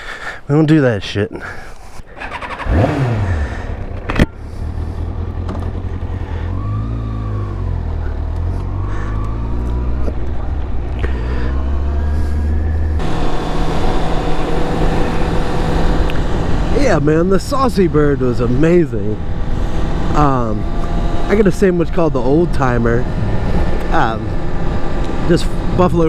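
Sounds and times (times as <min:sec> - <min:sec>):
steady engine hum: 0:01.3 - 0:26.0
motorcycle engine idling: 0:02.1 - 0:06.8.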